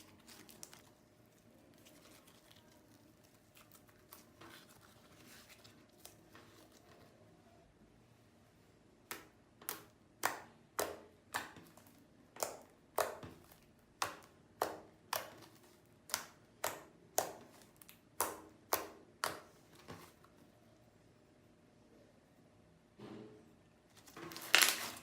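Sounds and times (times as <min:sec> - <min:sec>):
sticky slime popping: 0:09.1 - 0:19.6.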